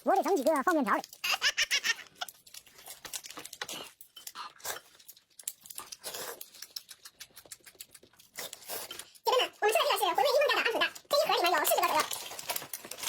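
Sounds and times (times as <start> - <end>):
plastic wrapper crinkling: 0.0 - 8.5, 10.3 - 13.0
chewing: 0.0 - 9.2.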